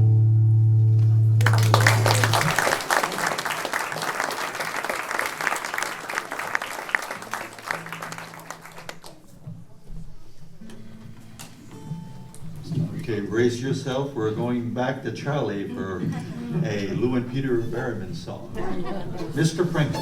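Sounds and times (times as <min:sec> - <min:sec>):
audience applauding: 0:01.4 - 0:09.3.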